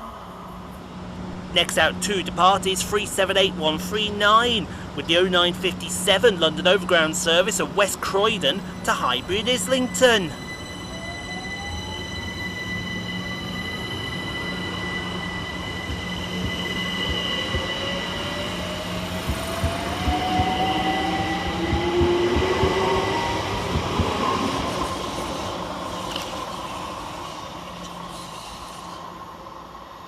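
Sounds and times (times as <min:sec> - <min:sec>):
steady high hum: 0:00.0 - 0:22.9
electric train motors whining: 0:00.2 - 0:29.9.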